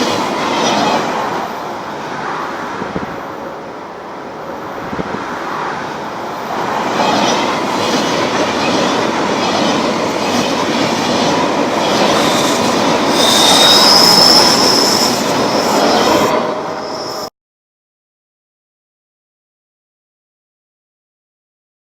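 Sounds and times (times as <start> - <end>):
train running past: 0.0 - 17.3
wheel squeal: 0.0 - 17.3.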